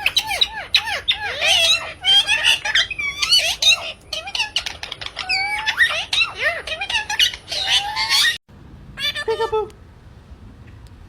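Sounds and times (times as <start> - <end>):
parrot squawking and whistling: 0.0 - 8.4.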